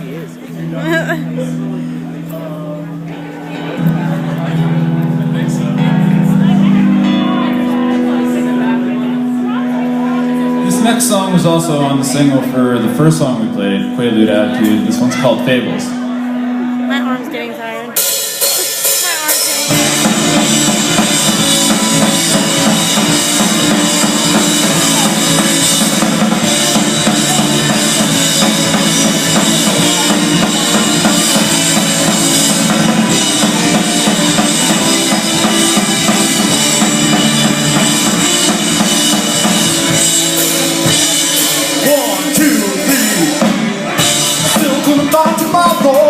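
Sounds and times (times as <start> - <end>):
rock band playing: 0.0 - 46.0
drum kit: 17.8 - 46.0.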